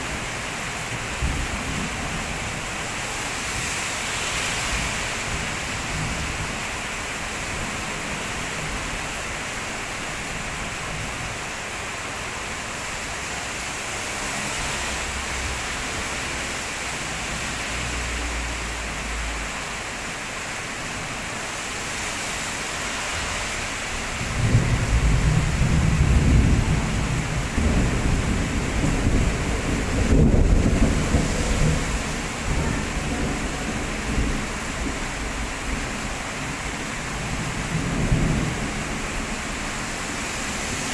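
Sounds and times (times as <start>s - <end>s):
heavy rain pouring on road: 0.0s - 40.9s
deep roll of thunder: 24.2s - 35.9s.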